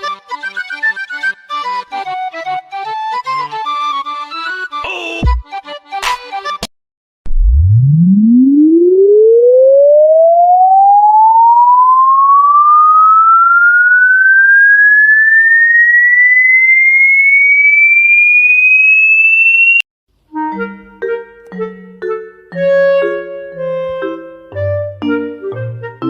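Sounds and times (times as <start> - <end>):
rising test-tone sweep: 7.3 - 19.8.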